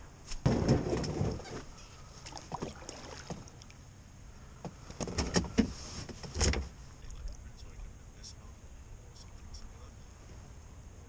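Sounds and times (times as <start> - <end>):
loud thump: 0.4 - 1.4.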